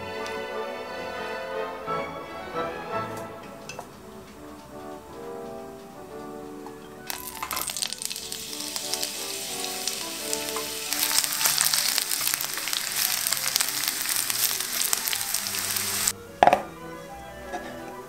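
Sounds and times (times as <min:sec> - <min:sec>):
aubergine sizzling in hot oil: 0:07.1 - 0:16.2.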